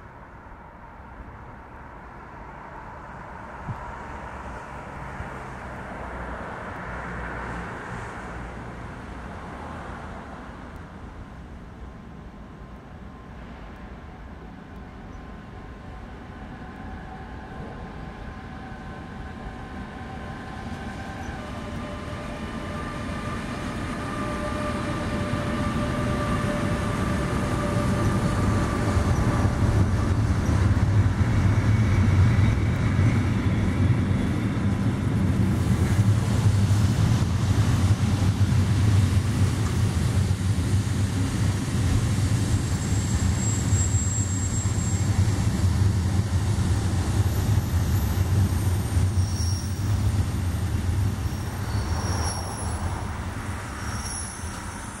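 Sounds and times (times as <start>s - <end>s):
wagons rumbling on rails: 13.0s - 55.0s
locomotive whine: 14.8s - 55.0s.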